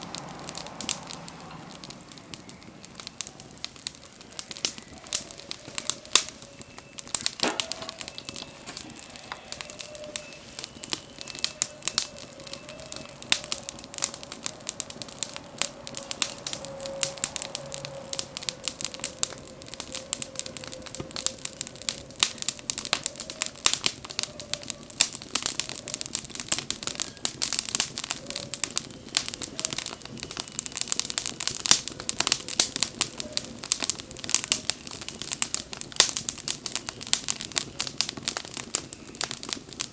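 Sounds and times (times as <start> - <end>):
bonfire crackling and popping: 0.0 - 39.9
faint wavering whistle: 4.4 - 24.9.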